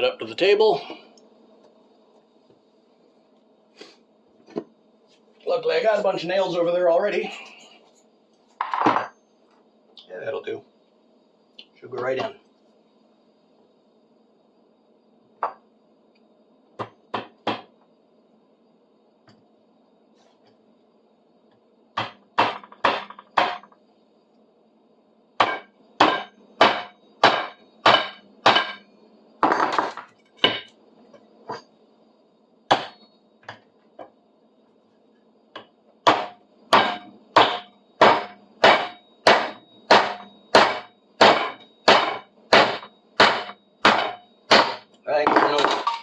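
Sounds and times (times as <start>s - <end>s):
hammer striking nail: 22.0s - 23.7s, 25.4s - 28.8s, 36.0s - 44.8s.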